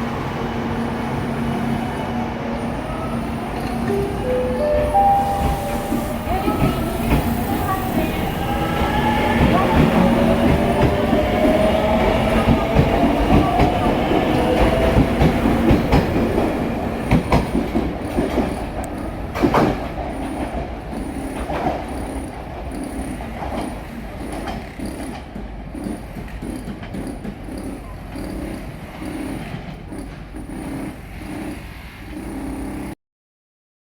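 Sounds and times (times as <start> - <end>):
train gliding whine: 0.0 - 32.2
wheels clacking over rail joints: 1.0 - 32.9.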